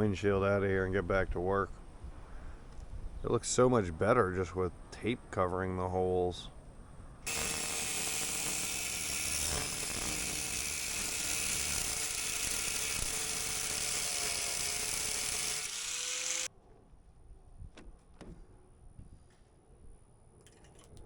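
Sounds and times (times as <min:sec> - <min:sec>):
power tool grinding: 0:07.2 - 0:16.5.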